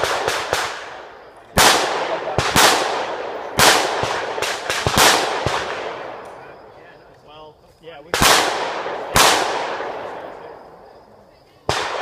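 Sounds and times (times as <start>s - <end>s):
rifle shots echoing: 0.0s - 6.6s, 8.1s - 10.7s, 11.7s - 12.0s.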